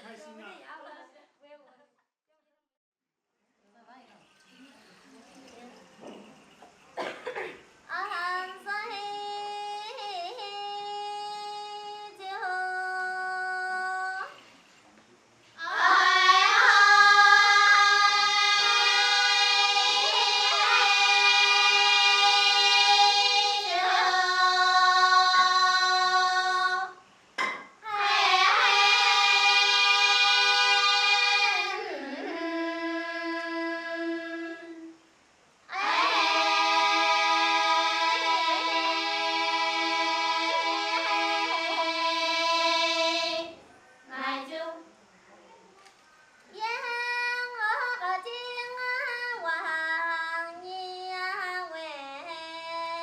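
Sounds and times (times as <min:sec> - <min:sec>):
women's choir singing: 0:15.6 - 0:35.0, 0:35.7 - 0:44.8.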